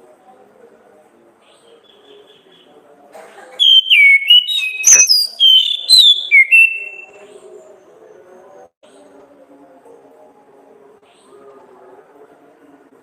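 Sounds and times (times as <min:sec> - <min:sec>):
thrush singing whistled notes: 0:03.6 - 0:07.2.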